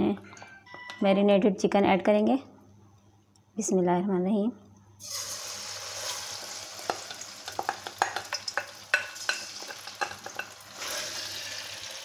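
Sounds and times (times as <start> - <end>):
chicken sizzling in hot oil: 5.0 - 12.0
spatula scraping and tapping pan: 6.8 - 10.6.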